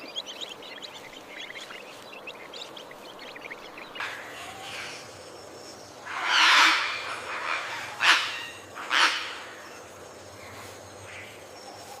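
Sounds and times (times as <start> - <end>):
birds calling harshly: 0.0 - 11.6.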